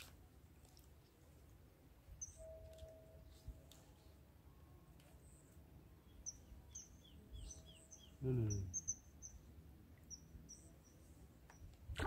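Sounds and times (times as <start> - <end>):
small birds chirping: 2.1 - 2.6, 5.2 - 11.8
man's low voice: 8.2 - 8.8.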